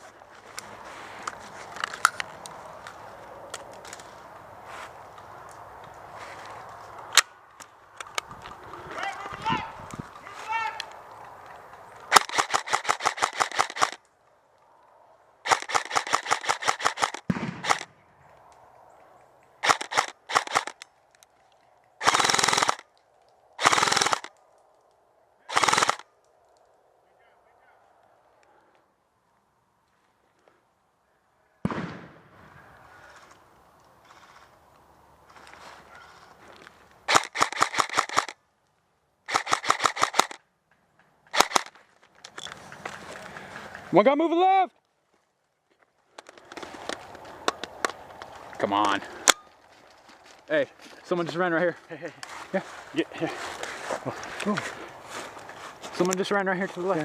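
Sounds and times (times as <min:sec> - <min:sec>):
airsoft rifles firing bursts: 0:12.1 - 0:14.0, 0:15.4 - 0:17.9, 0:19.6 - 0:20.8, 0:22.0 - 0:22.8, 0:23.6 - 0:24.3, 0:25.5 - 0:26.0, 0:37.1 - 0:38.4, 0:39.3 - 0:40.4, 0:41.3 - 0:41.7.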